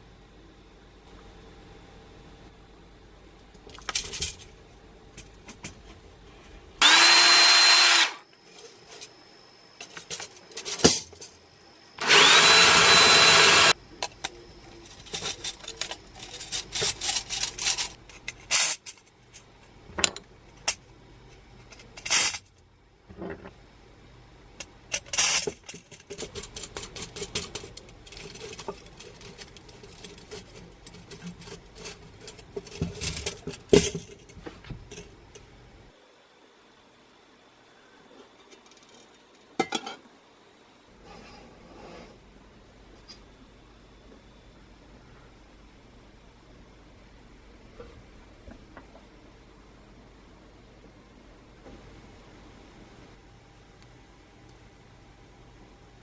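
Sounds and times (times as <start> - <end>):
electric drill spinning: 6.8 - 8.2, 12.0 - 13.8.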